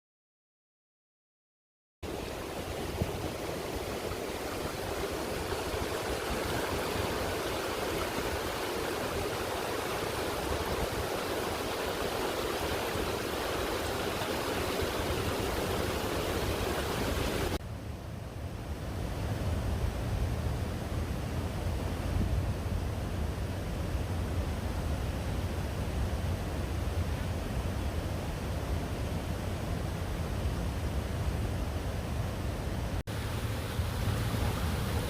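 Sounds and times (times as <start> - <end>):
floodwater rushing: 2.0 - 17.6, 33.1 - 35.0.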